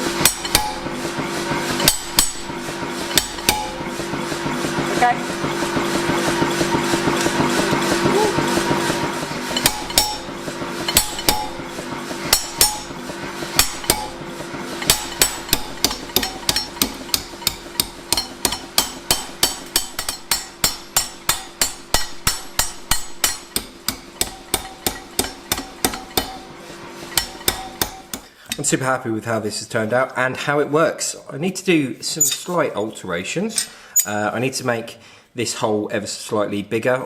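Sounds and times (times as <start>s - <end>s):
hammer striking metal: 0.0s - 28.7s.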